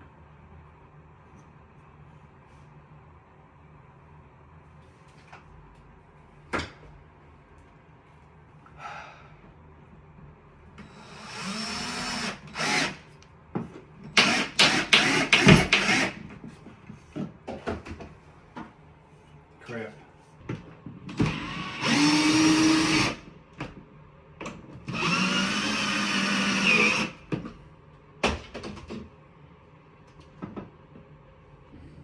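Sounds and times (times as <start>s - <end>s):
power drill driving screws: 10.8s - 13.0s, 14.2s - 16.2s, 21.2s - 23.2s, 24.9s - 27.2s.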